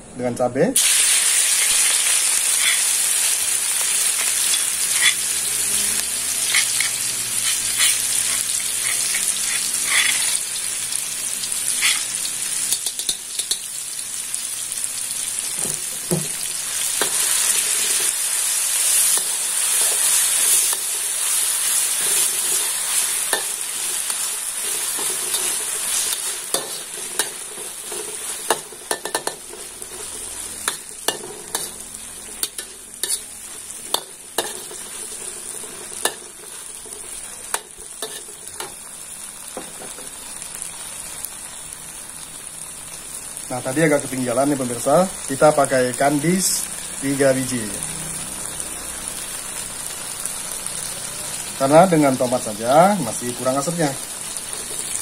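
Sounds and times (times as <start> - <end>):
food sizzling in hot oil: 0.8 - 55.0
metal ladle scraping a wok: 1.6 - 3.1, 4.1 - 10.6, 11.5 - 13.7, 17.0 - 38.8.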